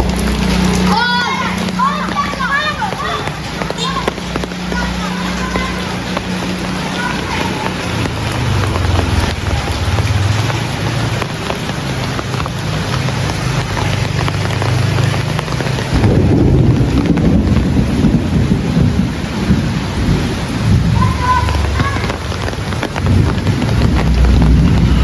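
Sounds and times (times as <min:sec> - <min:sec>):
heavy rain: 0:00.0 - 0:25.0
thunder rumbling: 0:00.0 - 0:25.0
low rumble: 0:23.0 - 0:25.0.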